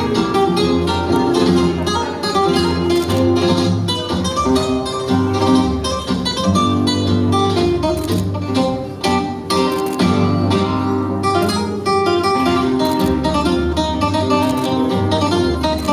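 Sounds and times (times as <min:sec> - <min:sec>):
flamenco guitar strumming: 0:00.0 - 0:15.9.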